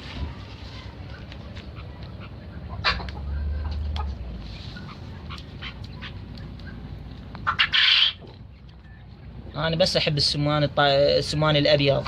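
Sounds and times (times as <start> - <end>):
poultry calling: 7.4 - 8.4.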